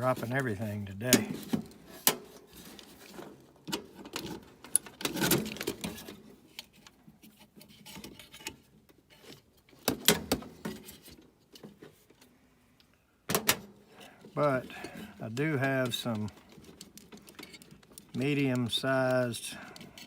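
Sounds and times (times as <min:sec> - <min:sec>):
metal tools clicking and rattling: 0:14.6 - 0:20.0.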